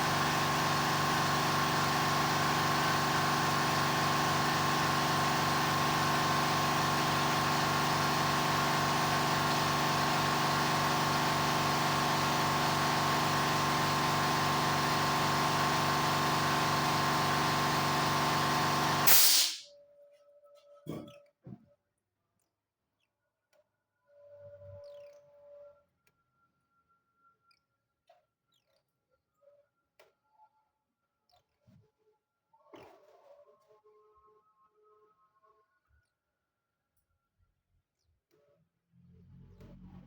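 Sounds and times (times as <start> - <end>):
small motor whirring: 0.0 - 19.6
rushing air hiss: 19.1 - 19.6.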